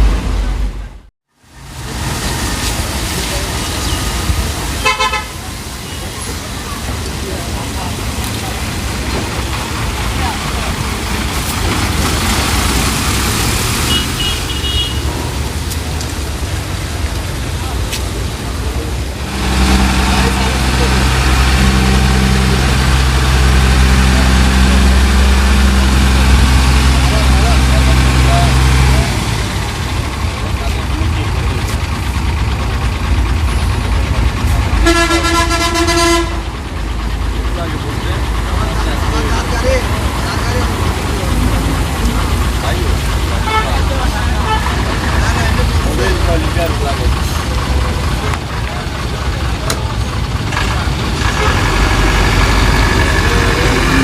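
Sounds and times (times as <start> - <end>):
truck diesel engine passing: 0.0 - 54.0
tyre and traffic noise: 0.0 - 54.0
vehicle horn blast: 4.8 - 5.4, 13.9 - 15.1, 34.8 - 36.4, 43.4 - 43.8.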